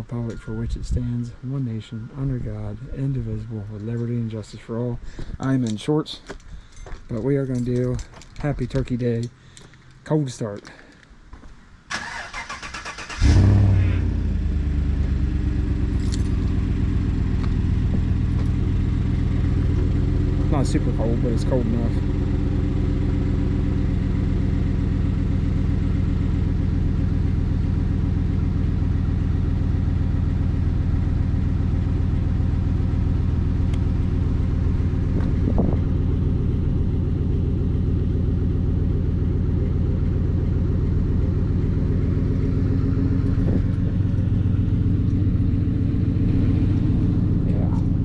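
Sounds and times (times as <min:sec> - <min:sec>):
pickup engine idling: 0:12.0 - 0:48.0.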